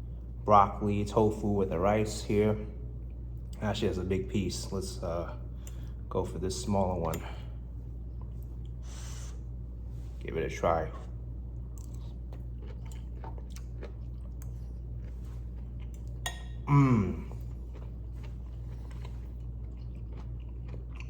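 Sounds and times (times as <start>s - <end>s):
steady low hum: 0.0s - 21.0s
person chewing food: 11.0s - 21.0s
person humming mm: 16.7s - 17.4s.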